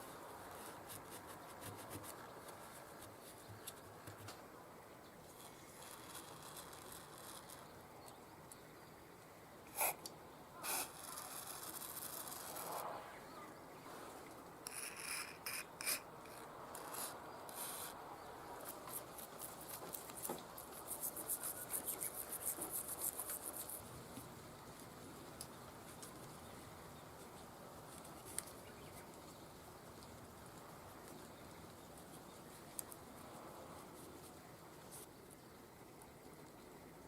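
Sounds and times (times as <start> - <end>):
hand scraping metal part: 14.6 - 17.9.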